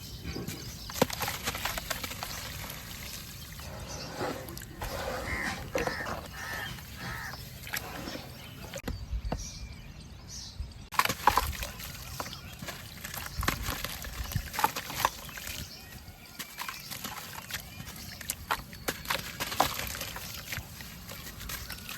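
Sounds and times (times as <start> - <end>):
water sloshing: 0.6 - 8.9.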